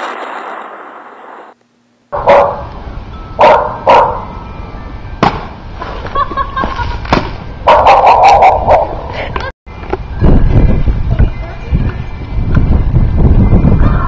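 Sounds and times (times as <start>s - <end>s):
dog barking: 2.2s - 2.6s, 3.4s - 4.2s, 7.7s - 9.0s.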